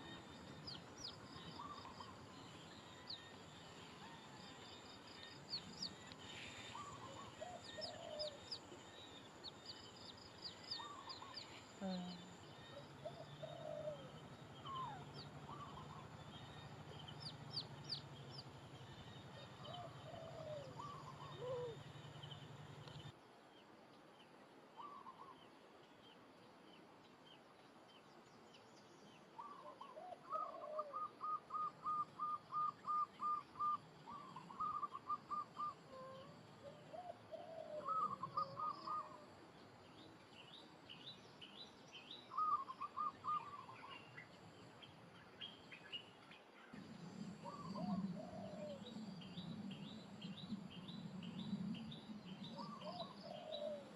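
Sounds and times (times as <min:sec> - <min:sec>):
birds chirping: 0:00.0 - 0:23.2, 0:27.9 - 0:53.9
low steady hum: 0:00.0 - 0:23.2.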